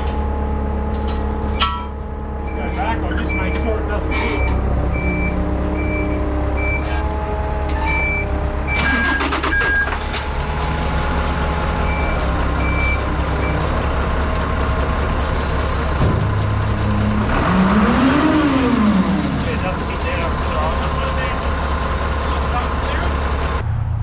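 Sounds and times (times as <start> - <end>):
diesel vehicle engine running: 0.0 - 24.0
reversing alarm beeping: 2.4 - 7.0, 7.8 - 10.1, 11.8 - 13.7.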